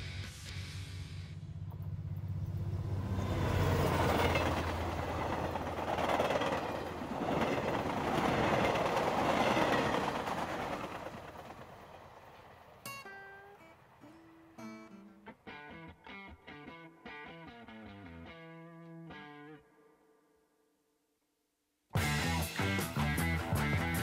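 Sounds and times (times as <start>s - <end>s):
train rumble and hissing rush: 0.0s - 13.1s.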